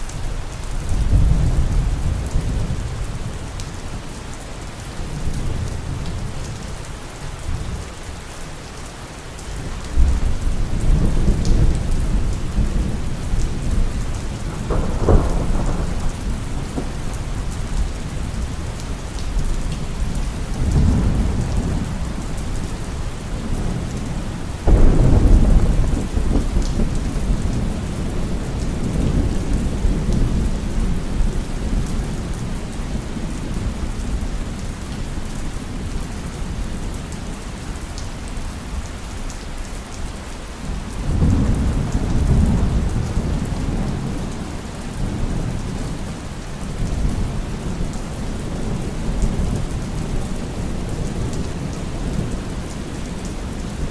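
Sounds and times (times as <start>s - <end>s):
heavy rain falling: 0.0s - 53.9s
rolling thunder: 0.8s - 3.4s, 10.0s - 18.7s, 19.4s - 22.6s, 23.2s - 34.6s, 41.0s - 52.4s.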